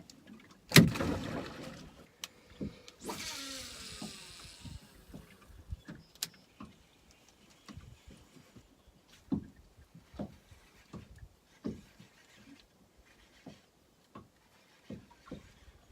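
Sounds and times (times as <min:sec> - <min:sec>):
reel whirring: 0:02.2 - 0:08.7
fishing line hissing off reel: 0:02.9 - 0:05.5.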